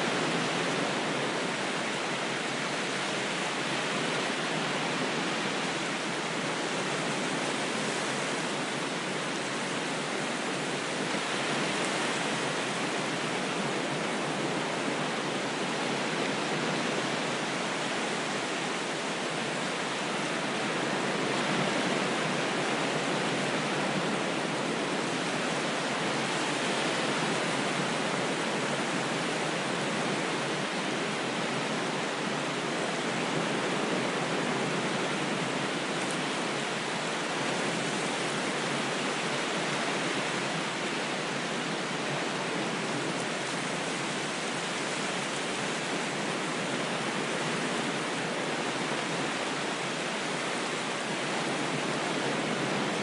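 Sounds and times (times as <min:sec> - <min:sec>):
rushing water: 0:00.0 - 0:53.0.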